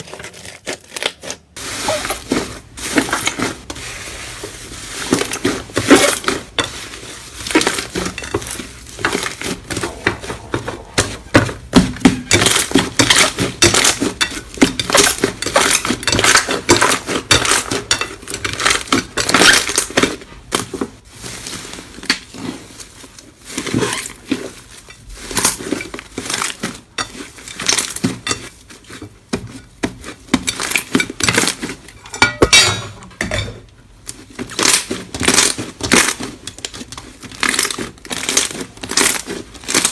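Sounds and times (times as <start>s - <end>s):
slime crackling and popping by hand: 34.0s - 39.9s.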